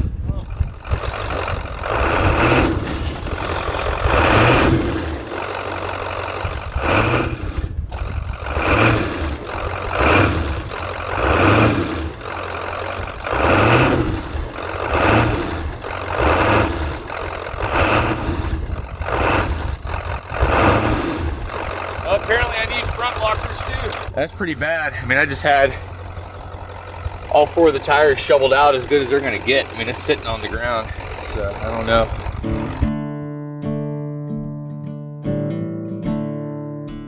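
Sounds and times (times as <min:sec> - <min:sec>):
shovel digging snow: 0:02.4 - 0:05.2.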